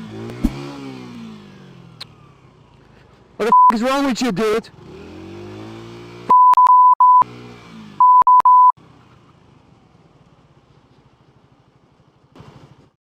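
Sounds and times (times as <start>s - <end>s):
censor bleep tone: 3.5s - 3.8s, 6.3s - 7.2s, 8.0s - 8.8s.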